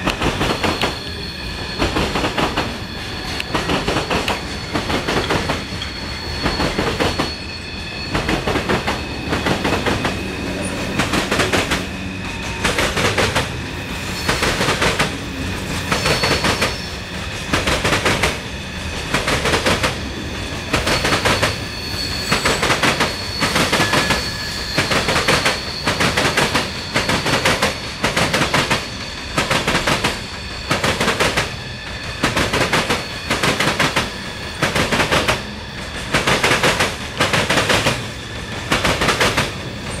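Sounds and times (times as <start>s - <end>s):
steel wheel squeal: 0.0s - 40.0s
train wheels clacking over rail joints: 0.0s - 40.0s.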